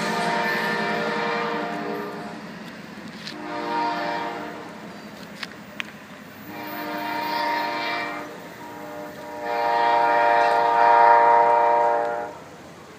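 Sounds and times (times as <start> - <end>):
locomotive air horn blasts: 0.0 - 2.4, 3.2 - 4.8, 6.4 - 12.5.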